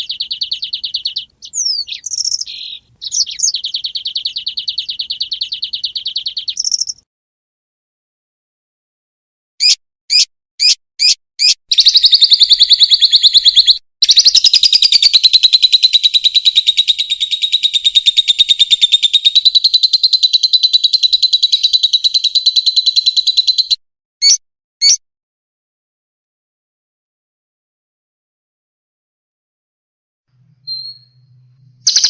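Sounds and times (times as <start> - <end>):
songbird trilling: 0.0 - 7.0, 9.6 - 25.0, 30.6 - 31.3.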